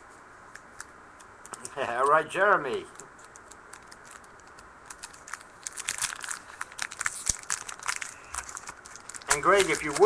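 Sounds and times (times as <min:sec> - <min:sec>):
wrappers crinkling: 0:02.8 - 0:10.0
cards clicking: 0:08.4 - 0:10.0.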